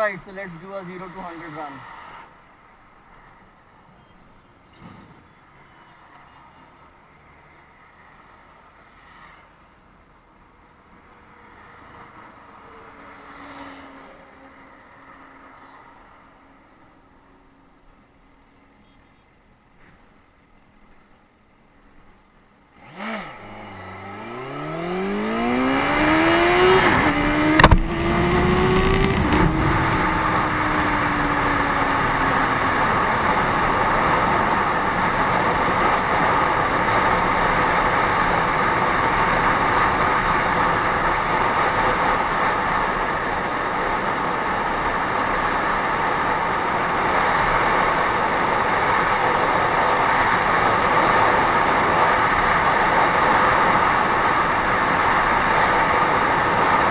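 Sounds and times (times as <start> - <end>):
motorcycle engine revving: 22.8 - 38.6
wind rushing: 24.0 - 35.4.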